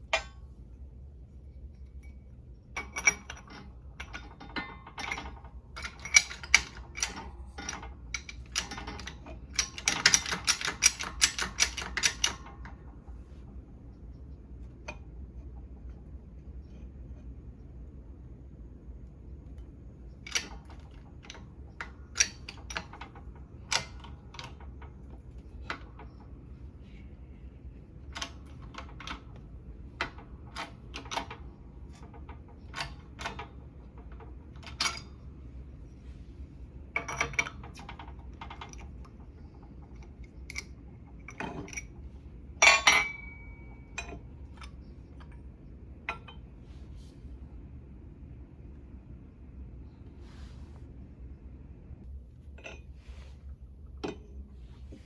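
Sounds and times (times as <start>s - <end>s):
metal tools clinking: 0.0s - 0.5s, 42.6s - 45.4s
steady low hum: 0.0s - 55.0s.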